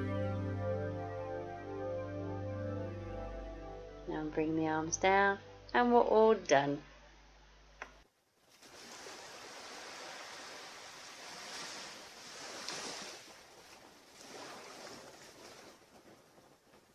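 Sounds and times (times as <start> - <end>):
ocean waves on beach: 8.5 - 16.2.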